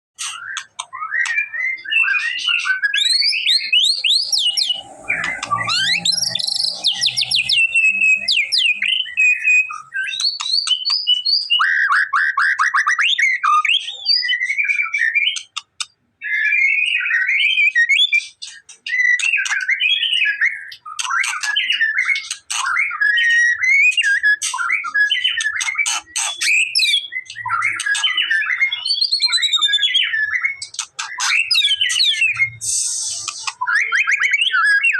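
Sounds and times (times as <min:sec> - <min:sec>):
songbird whistles and trills: 0:00.2 - 0:34.9
low rumble: 0:04.1 - 0:09.2.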